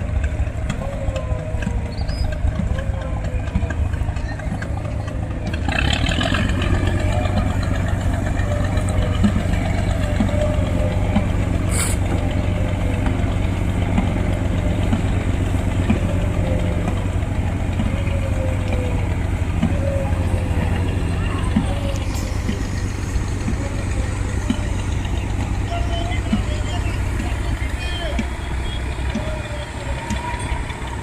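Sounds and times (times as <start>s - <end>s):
engine humming: 0.0s - 31.0s
brief high hiss: 11.7s - 12.0s.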